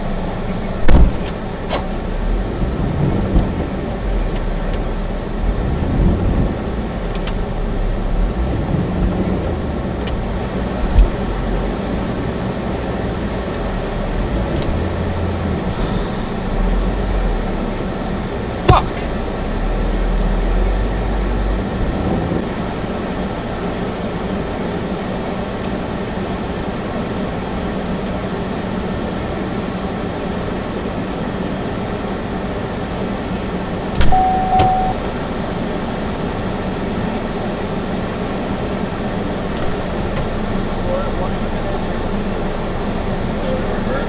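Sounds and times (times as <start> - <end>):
car road and engine noise: 0.0 - 44.0
short beep: 34.0 - 35.1.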